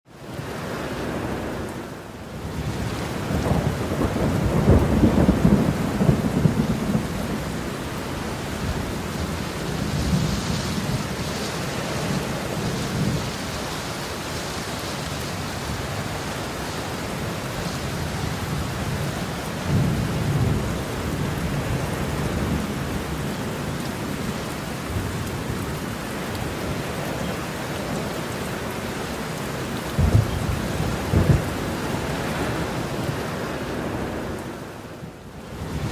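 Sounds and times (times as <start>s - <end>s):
heavy rain falling: 0.1s - 35.9s
thunder rumbling: 2.4s - 13.9s, 15.3s - 27.2s, 29.8s - 34.4s.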